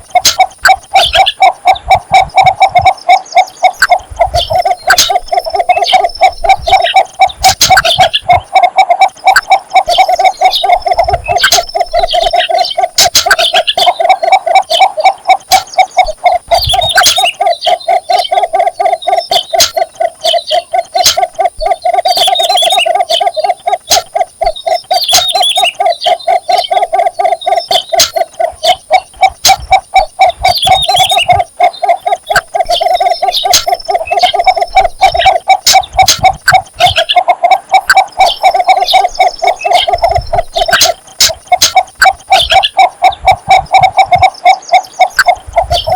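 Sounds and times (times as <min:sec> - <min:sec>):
bird giving low clucking call: 0:00.0 - 0:45.9
birds chirping: 0:00.0 - 0:45.9.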